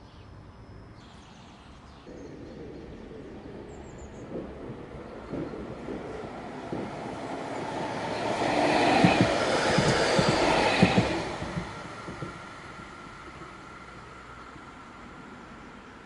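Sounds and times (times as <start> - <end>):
tram rumbling past: 2.1 - 16.0
wheels clacking on rails: 2.3 - 15.0.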